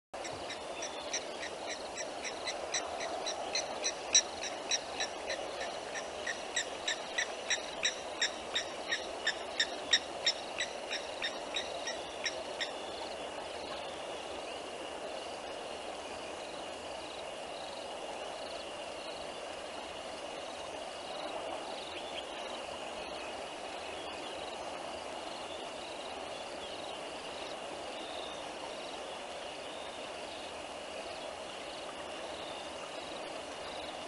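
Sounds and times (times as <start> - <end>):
insect trill: 0.2 - 13.2.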